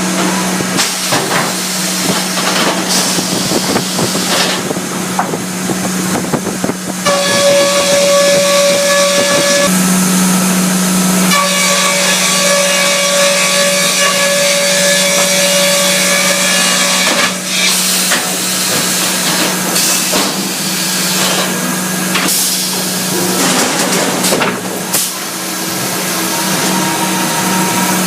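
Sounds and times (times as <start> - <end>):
sawmill sawing wood: 7.0 - 9.8, 10.4 - 28.0.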